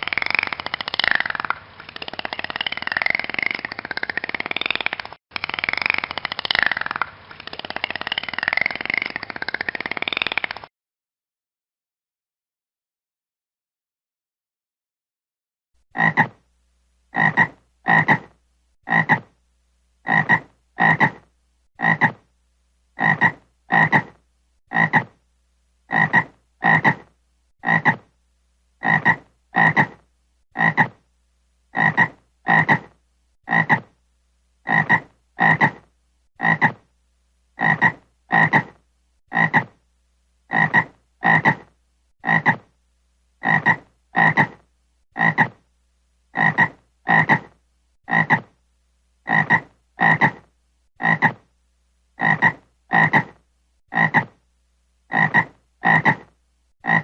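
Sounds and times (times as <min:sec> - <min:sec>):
frog croaking: 0:00.0 - 0:10.7, 0:15.9 - 0:16.4, 0:17.1 - 0:19.3, 0:20.0 - 0:22.2, 0:23.0 - 0:25.2, 0:25.9 - 0:28.1, 0:28.8 - 0:31.0, 0:31.7 - 0:34.0, 0:34.6 - 0:36.9, 0:37.6 - 0:39.8, 0:40.5 - 0:42.7, 0:43.4 - 0:44.6, 0:45.2 - 0:45.6, 0:46.3 - 0:48.6, 0:49.2 - 0:51.5, 0:52.2 - 0:54.4, 0:55.1 - 0:57.0.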